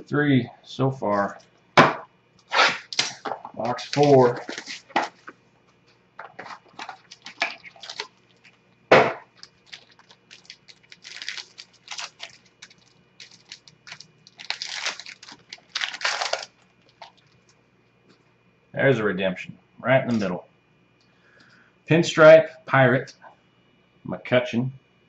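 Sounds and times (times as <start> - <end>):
wrapper tearing and crinkling: 2.7 - 5.2, 6.4 - 17.6
cards rustling: 2.8 - 5.4, 6.2 - 17.5.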